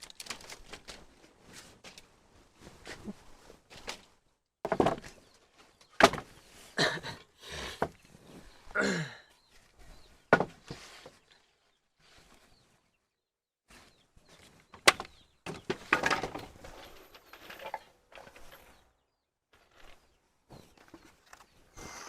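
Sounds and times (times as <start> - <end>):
scraping and rustling: 15.5 - 19.0.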